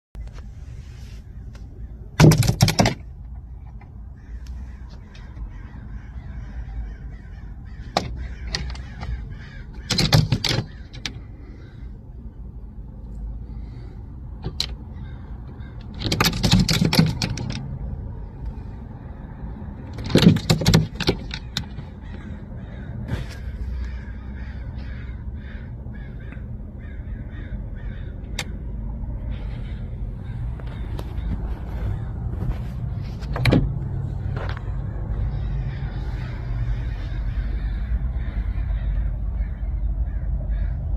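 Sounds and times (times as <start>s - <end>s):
steady low rumble: 3.0s - 9.9s, 10.7s - 16.0s, 17.4s - 20.2s, 20.9s - 40.9s
harsh raspy animal calls: 4.1s - 12.3s, 14.8s - 16.0s, 21.4s - 32.2s, 34.1s - 40.9s.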